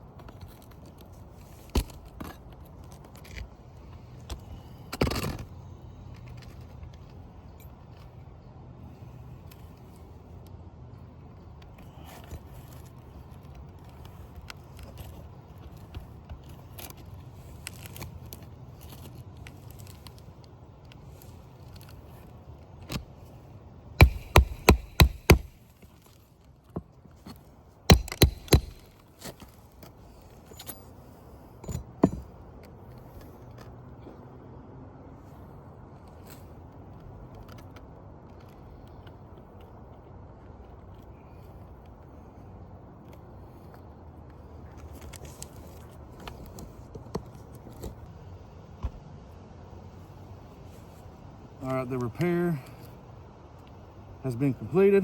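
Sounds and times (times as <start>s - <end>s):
low steady hum: 0.0s - 34.2s
hammer driving nails: 24.0s - 25.6s, 27.9s - 29.0s.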